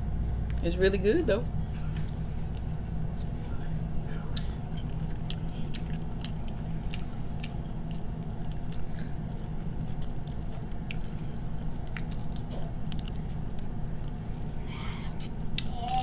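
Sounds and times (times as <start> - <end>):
people chewing: 1.6 - 16.0
small clicks and smacks: 9.8 - 14.2.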